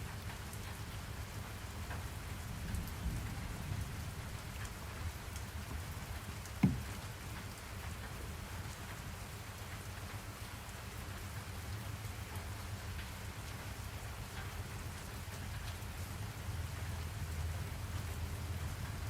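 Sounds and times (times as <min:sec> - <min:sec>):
steady rain: 0:00.0 - 0:19.0
short sharp thump: 0:06.6 - 0:07.0.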